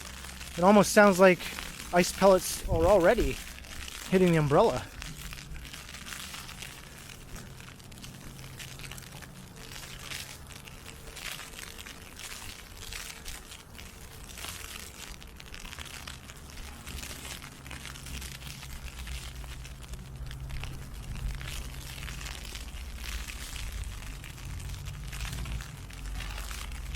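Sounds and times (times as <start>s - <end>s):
ice pellets pattering on umbrella: 0.0s - 26.9s
low rumble: 1.4s - 9.4s, 18.1s - 26.9s.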